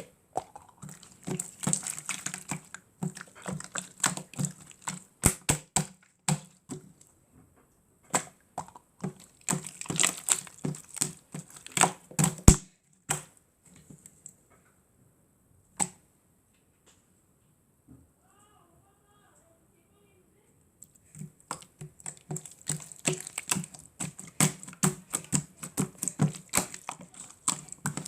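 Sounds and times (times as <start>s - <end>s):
slime crackling pops and clicks: 0.4s - 6.4s, 8.2s - 13.3s.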